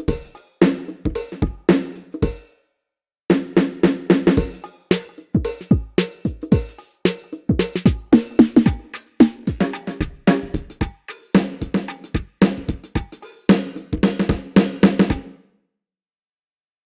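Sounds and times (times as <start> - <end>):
sampled drum hits: 3.3 - 15.3.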